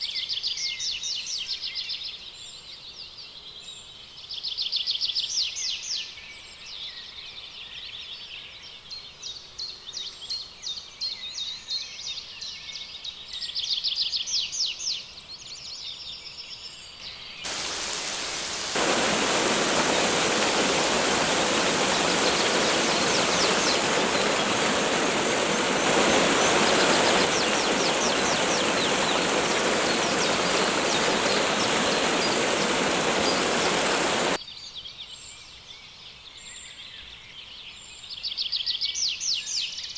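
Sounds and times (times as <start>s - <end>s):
rush of falling water: 17.5s - 34.4s
trilling bird calls: 17.5s - 34.4s.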